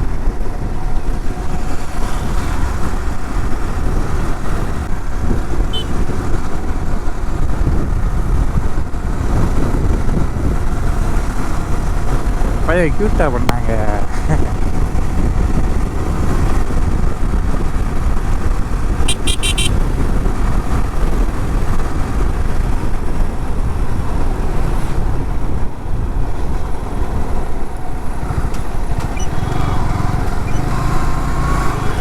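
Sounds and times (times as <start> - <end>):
motorcycle engine and road noise: 0.0 - 32.0
wind buffeting microphone: 0.0 - 32.0
horn beeps: 5.7 - 6.0, 19.0 - 19.8, 29.0 - 30.7.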